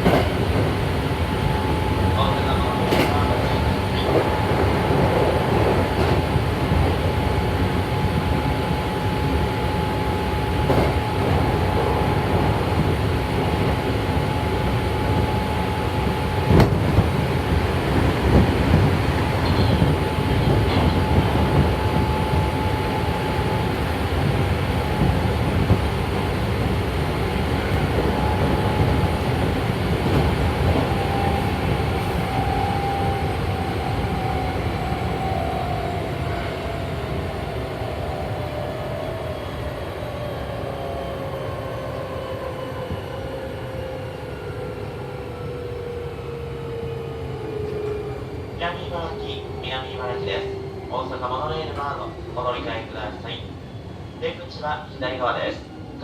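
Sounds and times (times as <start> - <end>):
train wheels rumbling on rail: 0.0 - 54.2.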